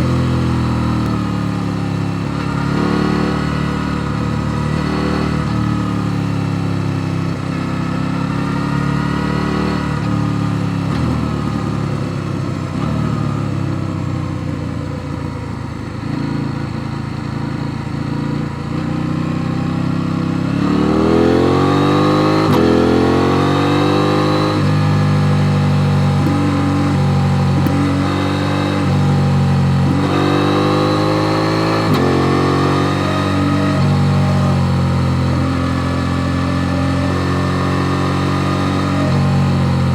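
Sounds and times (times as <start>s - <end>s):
motorcycle engine revving: 0.0s - 39.9s
gear shifts: 22.4s - 39.9s.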